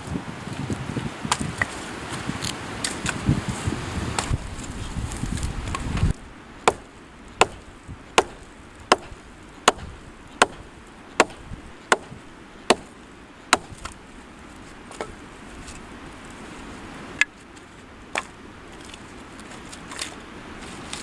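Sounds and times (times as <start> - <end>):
blade chopping wood: 4.2 - 4.7, 6.7 - 14.0, 14.9 - 15.2.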